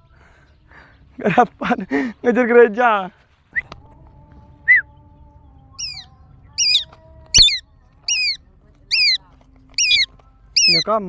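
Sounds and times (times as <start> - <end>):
bird calling: 5.8 - 9.2, 9.8 - 11.0.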